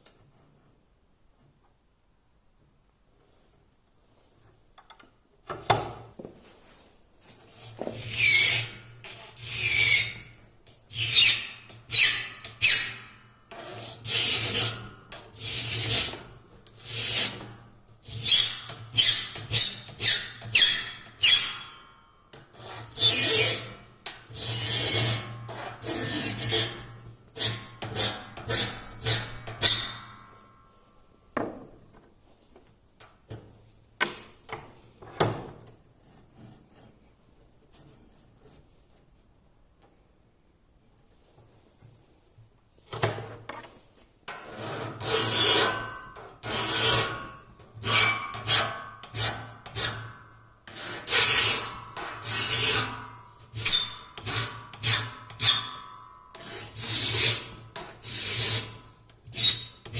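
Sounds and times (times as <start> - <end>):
file rasping on saw blade: 7.6 - 21.9, 22.6 - 30.2, 44.4 - 59.9.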